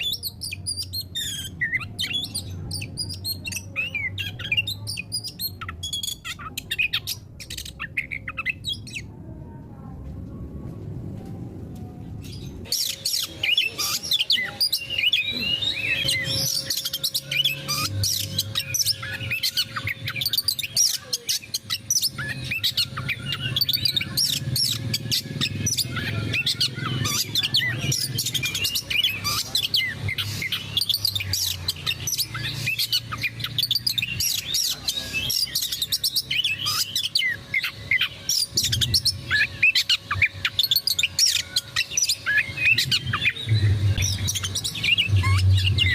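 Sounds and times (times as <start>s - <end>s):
low hum: 9.1s - 12.7s
bird singing whistles and chirps: 12.3s - 45.9s.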